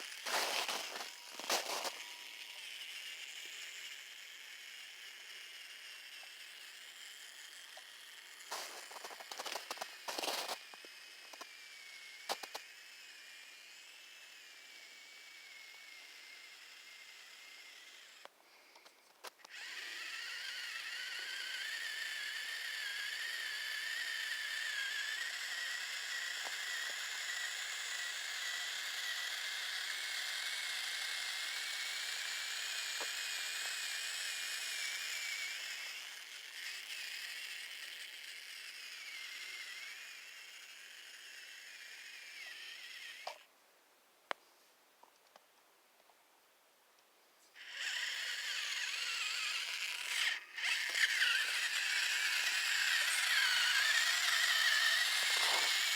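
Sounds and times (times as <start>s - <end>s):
rc truck motor whining: 0.0s - 43.5s, 47.5s - 55.9s.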